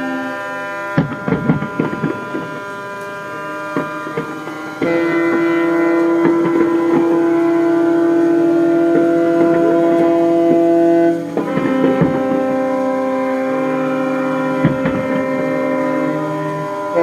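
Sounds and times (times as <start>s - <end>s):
ship horns blasting: 0.0s - 17.0s.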